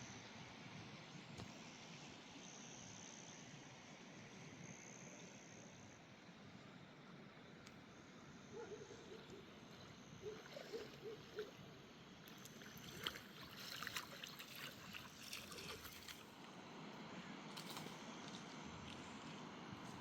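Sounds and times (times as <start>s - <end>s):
faint trickling water: 9.6s - 16.6s.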